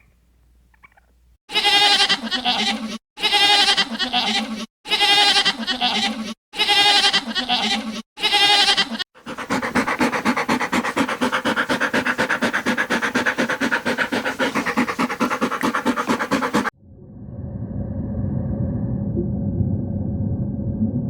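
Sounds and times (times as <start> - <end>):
goat bleating: 1.5 - 9.0.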